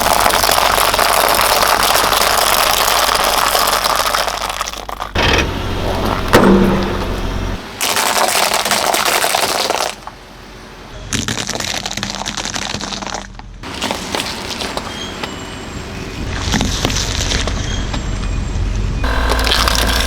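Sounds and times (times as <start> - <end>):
dry food crackling under tyre: 0.0 - 10.2, 11.1 - 15.5, 19.0 - 20.0.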